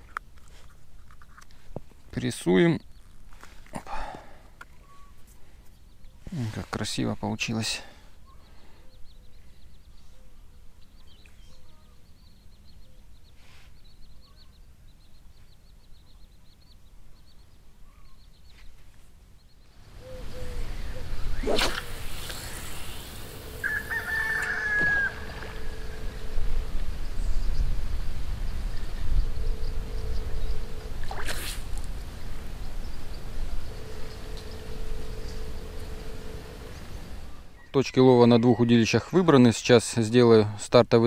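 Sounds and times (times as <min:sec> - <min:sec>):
birds chirping and trilling: 0:02.2 - 0:41.0
bird call dropping in pitch: 0:23.6 - 0:26.8
low rumble: 0:25.1 - 0:31.1.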